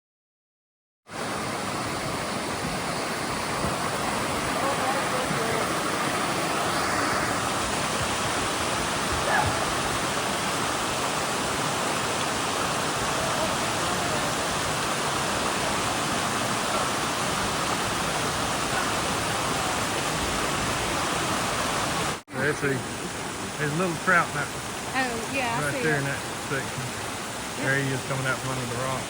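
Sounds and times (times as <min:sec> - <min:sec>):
waterfall rushing: 0:01.1 - 0:29.0.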